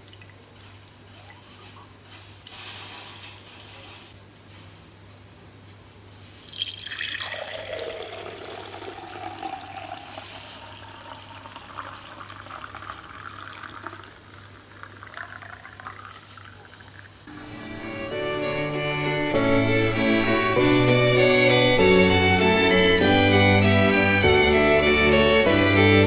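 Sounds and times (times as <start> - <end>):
tap water running: 6.4 - 17.3.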